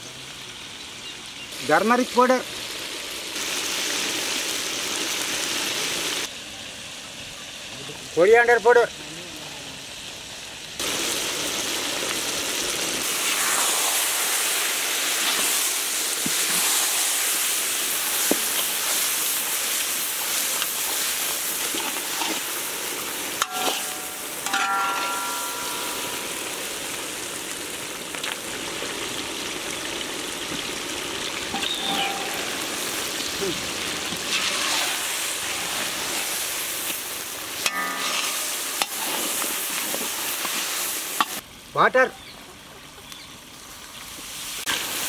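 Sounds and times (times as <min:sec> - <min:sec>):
food frying in oil: 0:00.0 - 0:45.0
spatula stirring: 0:20.2 - 0:22.7.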